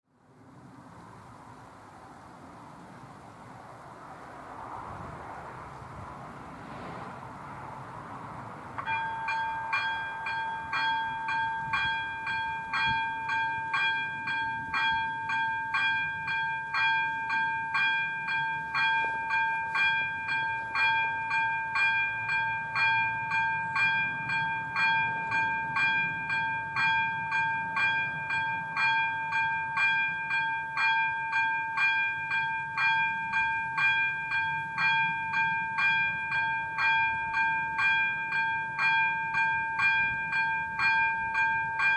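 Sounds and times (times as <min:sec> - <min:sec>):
level crossing warning bell ringing: 0:08.8 - 0:41.9.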